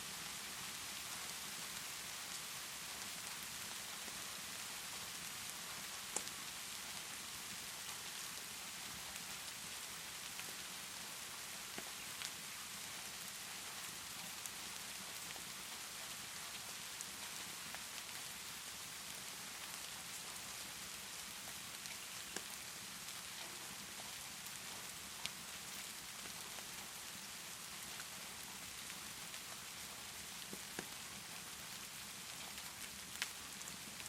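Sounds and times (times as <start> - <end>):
wood fire crackling: 6.0 - 6.5, 21.1 - 22.6, 23.4 - 34.0.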